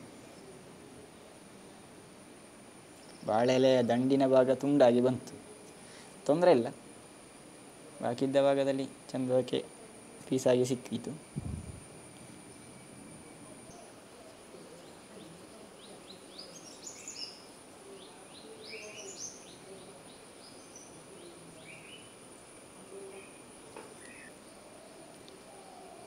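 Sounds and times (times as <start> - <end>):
faint high-pitched whine: 0.0 - 26.0
bird chirping: 13.7 - 22.2, 23.2 - 26.0.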